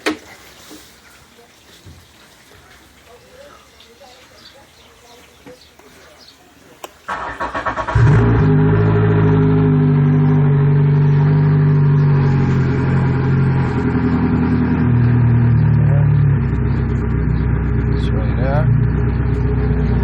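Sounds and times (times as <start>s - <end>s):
boat motor idling: 7.1s - 20.0s.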